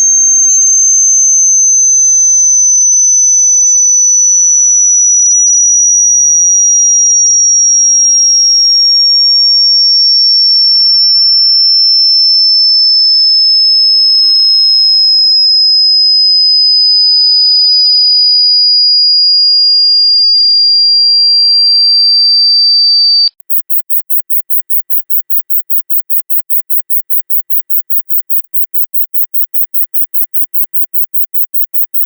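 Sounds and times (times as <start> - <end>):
high-pitched electronic tone sliding down: 23.5 - 32.0.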